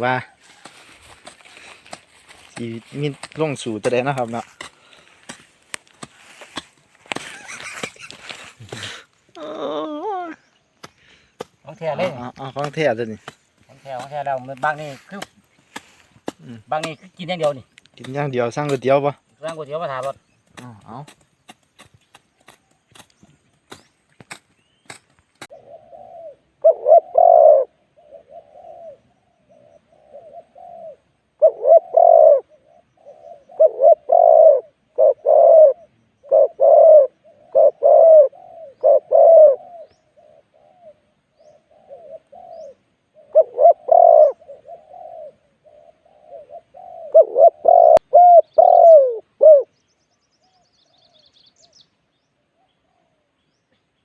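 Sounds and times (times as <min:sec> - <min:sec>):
dove cooing: 0:25.5 - 0:49.8.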